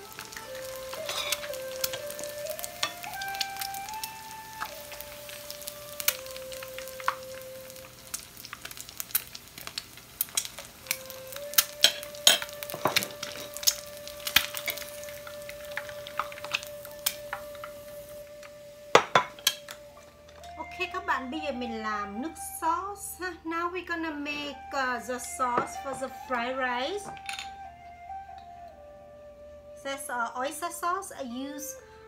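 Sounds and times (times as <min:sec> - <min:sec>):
oil crackling and popping: 0:00.0 - 0:20.8
eggs sizzling in hot oil: 0:00.0 - 0:22.7.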